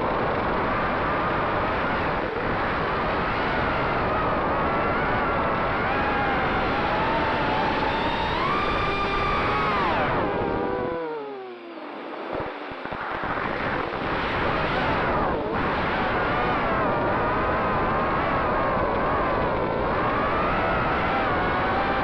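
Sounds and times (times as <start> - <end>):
quadcopter motors whining: 4.1 - 12.7.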